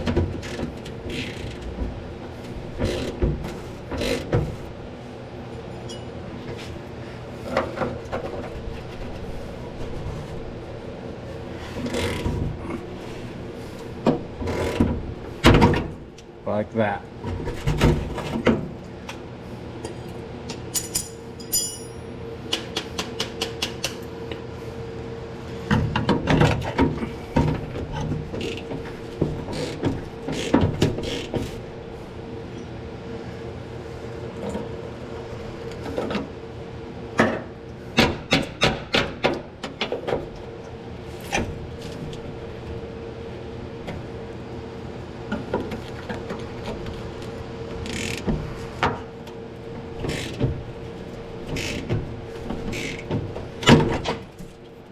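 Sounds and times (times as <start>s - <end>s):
steady background hum: 0.0s - 54.9s
metal clinks and knocks: 20.8s - 22.1s.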